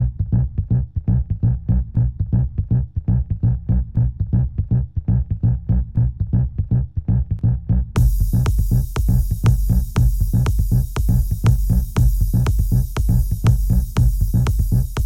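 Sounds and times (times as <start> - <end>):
electronic music with bass beat: 8.0 - 15.0.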